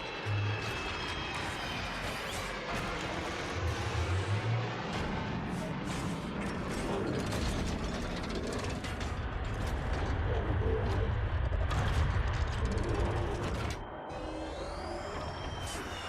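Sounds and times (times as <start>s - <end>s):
steady low rumble: 2.8s - 15.6s.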